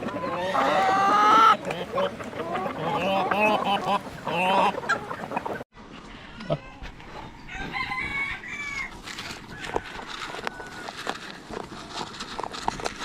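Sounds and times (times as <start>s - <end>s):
chickens clucking: 0.0s - 5.7s
rooster crowing: 7.4s - 11.0s.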